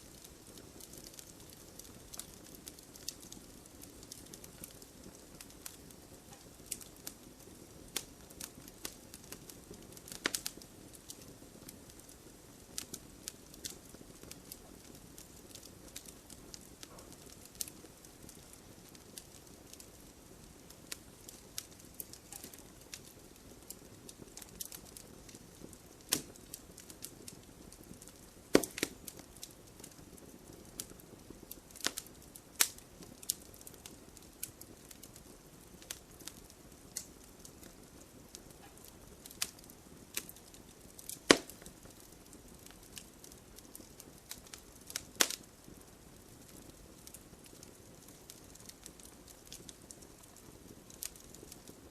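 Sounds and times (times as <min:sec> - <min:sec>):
campfire hissing and crackling: 0:00.0 - 0:51.9
campfire sharp pops: 0:04.0 - 0:07.2, 0:07.9 - 0:11.3, 0:12.8 - 0:18.5, 0:20.9 - 0:23.2, 0:23.8 - 0:27.4, 0:28.0 - 0:29.9, 0:31.7 - 0:33.8, 0:38.4 - 0:43.0, 0:43.8 - 0:45.5.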